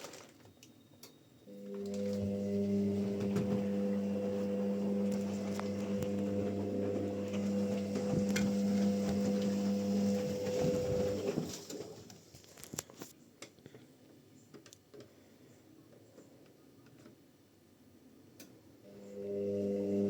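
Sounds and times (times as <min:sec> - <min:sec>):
washing machine humming: 0:01.4 - 0:12.2, 0:18.9 - 0:20.0.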